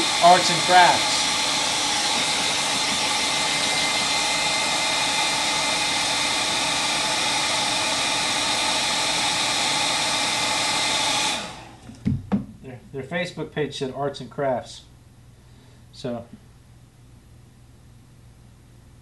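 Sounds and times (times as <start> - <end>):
electric hand dryer blowing air: 0.0 - 12.5.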